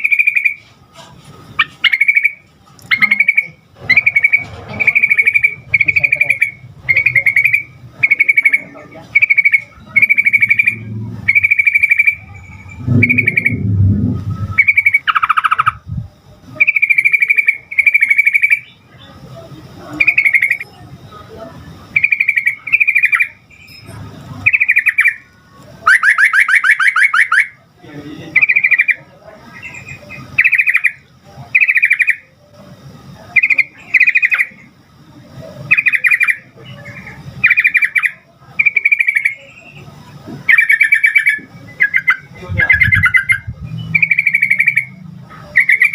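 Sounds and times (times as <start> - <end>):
bird chirping bubbly phrases: 1.8 - 18.8, 40.5 - 45.9.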